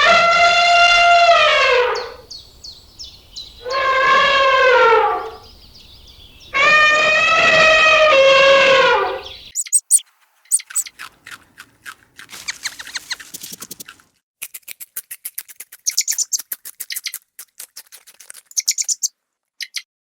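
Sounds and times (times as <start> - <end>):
high bird chirps and clicks: 9.4 - 19.9.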